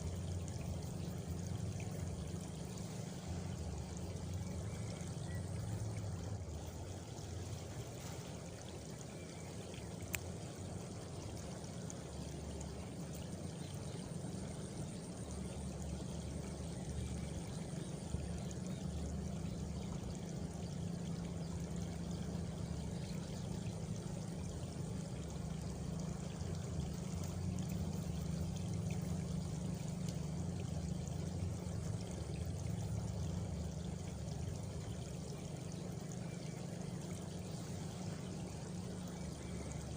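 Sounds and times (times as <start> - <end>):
faint high insect trill: 0.0 - 39.9
water flowing: 0.0 - 39.9.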